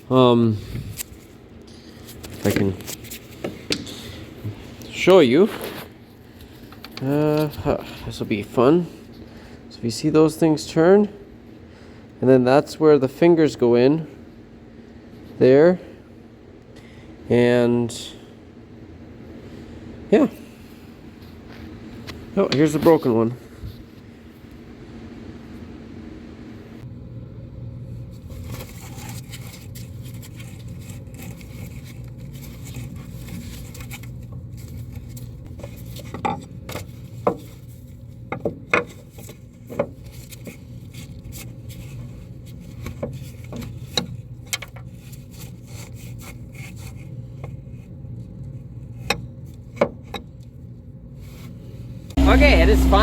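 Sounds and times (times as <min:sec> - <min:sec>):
steady low hum: 0:51.6 - 0:53.0.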